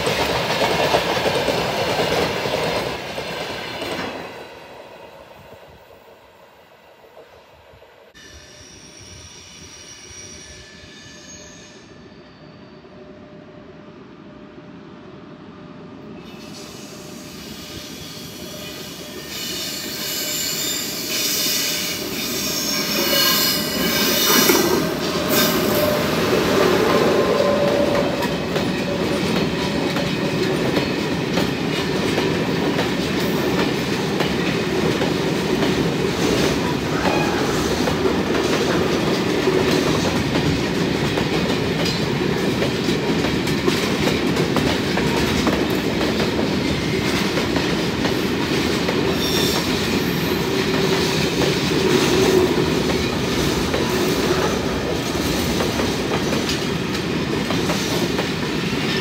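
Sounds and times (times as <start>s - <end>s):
freight train rumbling past: 0.0s - 59.0s
high-pitched squeal: 8.2s - 12.9s, 16.3s - 29.5s.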